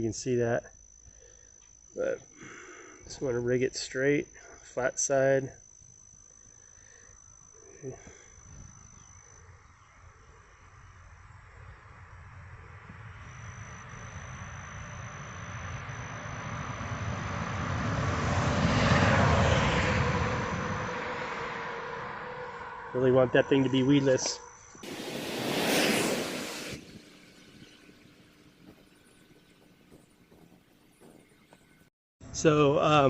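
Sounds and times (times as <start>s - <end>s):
high insect trill: 0.0s - 31.3s
passing vehicle engine noise: 16.4s - 29.7s.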